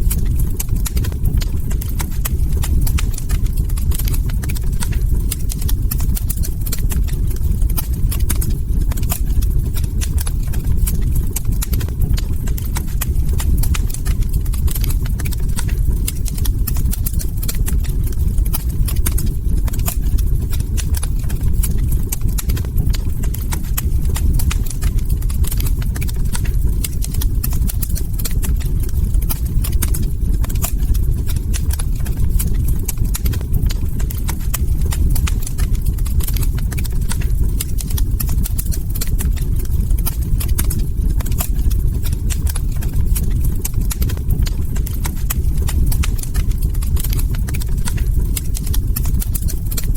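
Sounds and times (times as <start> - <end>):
log fire crackling: 0.0 - 49.9
low rumble: 0.0 - 49.9.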